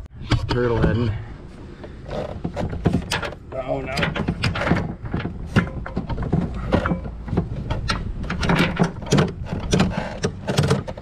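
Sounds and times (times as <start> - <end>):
cable scraping through grommet: 1.9 - 11.0.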